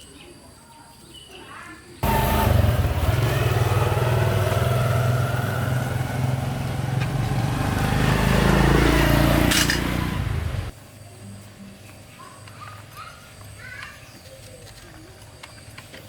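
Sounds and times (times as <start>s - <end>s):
motorcycle engine revving: 2.0s - 10.8s.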